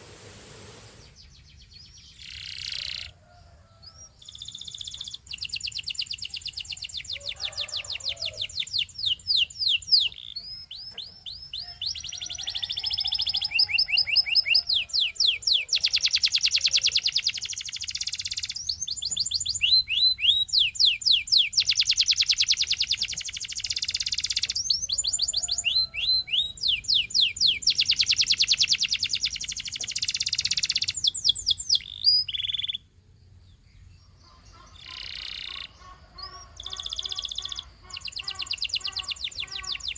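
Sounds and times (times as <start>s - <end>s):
canary singing trills: 1.0s - 39.9s.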